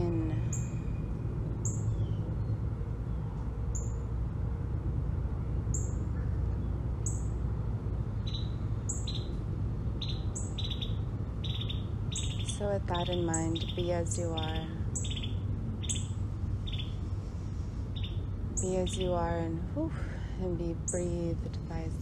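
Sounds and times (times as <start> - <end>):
steady low rushing noise: 0.0 - 22.0
lower bird chirps in pairs: 8.2 - 9.4, 10.0 - 17.0, 17.9 - 19.2.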